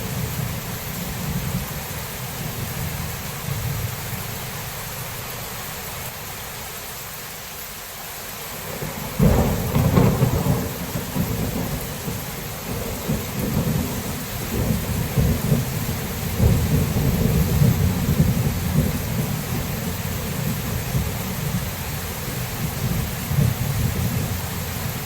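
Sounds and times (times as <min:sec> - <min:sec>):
steady rain: 0:00.0 - 0:25.0
thunder rumbling: 0:08.7 - 0:25.0.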